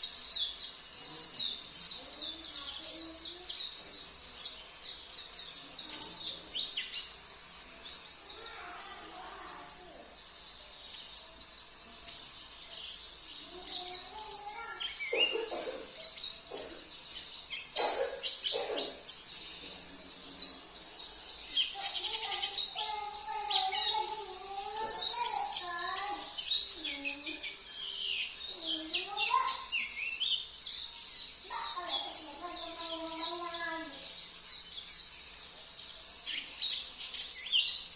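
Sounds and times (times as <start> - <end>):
high-pitched bird twittering: 12.0 - 37.9.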